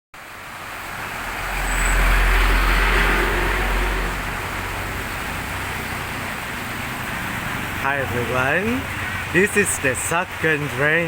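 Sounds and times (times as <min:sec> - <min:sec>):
tyre hiss on wet road: 0:00.2 - 0:10.7
rain hiss: 0:00.2 - 0:11.0
vehicle engine rumble: 0:00.2 - 0:11.0.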